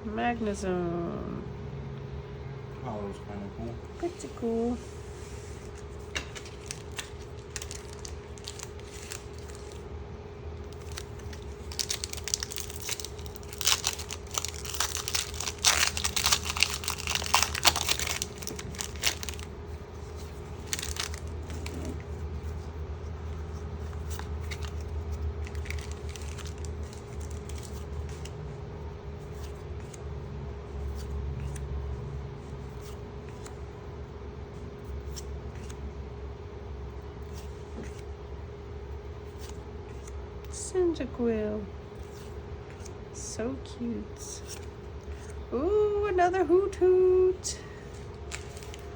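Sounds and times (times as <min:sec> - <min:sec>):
steady low hum: 0:00.0 - 0:48.9
handling of trading cards: 0:04.8 - 0:09.9, 0:10.6 - 0:31.7, 0:34.6 - 0:35.9, 0:37.1 - 0:38.1, 0:39.0 - 0:40.6, 0:41.9 - 0:43.0, 0:44.2 - 0:45.5, 0:47.6 - 0:48.9
foil wrapper crinkling and tearing: 0:05.8 - 0:09.9, 0:10.6 - 0:22.2, 0:23.8 - 0:28.3, 0:48.0 - 0:48.9.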